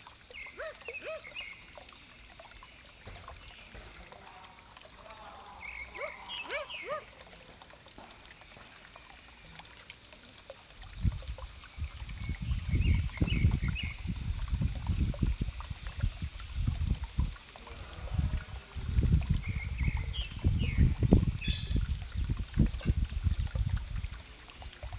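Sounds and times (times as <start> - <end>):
birds squeaky chirps: 0.3 - 3.8, 5.6 - 7.2, 19.3 - 23.9.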